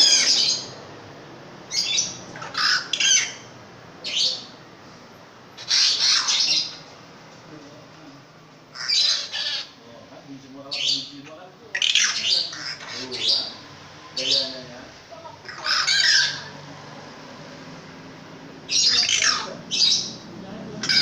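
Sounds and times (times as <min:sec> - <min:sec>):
bird squawking harshly: 0:00.0 - 0:00.8, 0:01.7 - 0:04.5, 0:05.6 - 0:06.8, 0:08.7 - 0:09.8, 0:10.7 - 0:13.6, 0:15.4 - 0:16.6, 0:18.7 - 0:20.2, 0:20.8 - 0:21.0.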